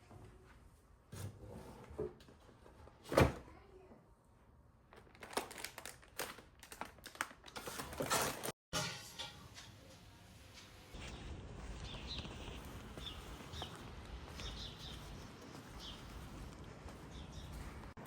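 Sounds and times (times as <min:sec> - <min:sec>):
rustling and crinkling: 0:04.9 - 0:08.6, 0:11.0 - 0:18.0.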